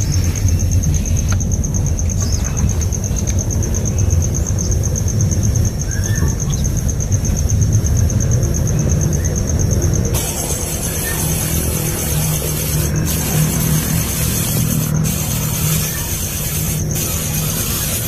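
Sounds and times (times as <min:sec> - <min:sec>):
bird chirps: 0:05.9 - 0:06.8, 0:10.3 - 0:12.8
high pulsing trill: 0:10.2 - 0:18.0.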